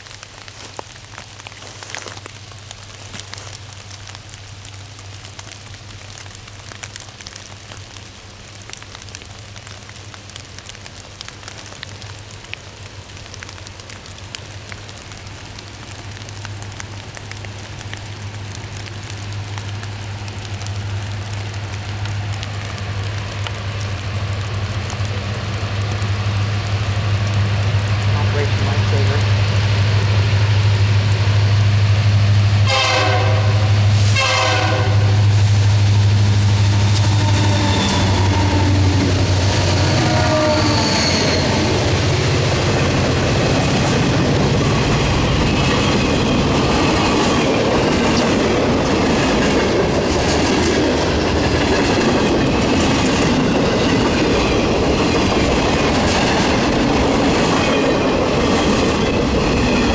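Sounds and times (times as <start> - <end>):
diesel locomotive engine drone: 9.0 - 59.9
train horn blasts: 27.6 - 42.2.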